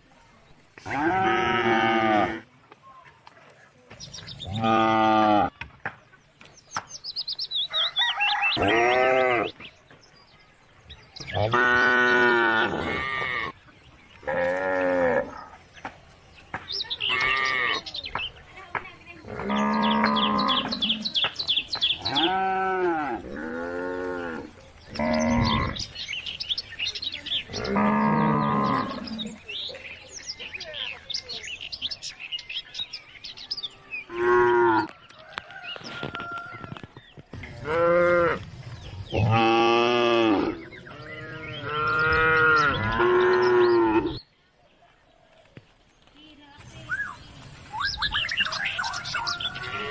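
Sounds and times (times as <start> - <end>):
cows mooing: 0.8 - 2.4, 4.5 - 5.5, 19.3 - 21.0, 22.0 - 25.9, 27.5 - 29.4, 39.1 - 44.2.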